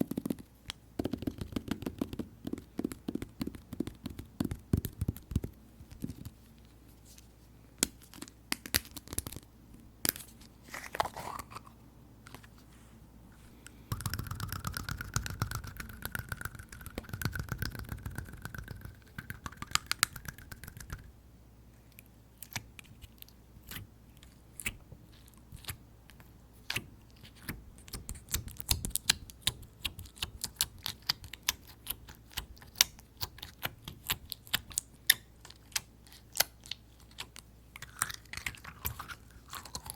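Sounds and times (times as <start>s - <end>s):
fingers squishing sticky slime: 0.0s - 6.4s, 13.9s - 21.1s, 22.4s - 39.9s.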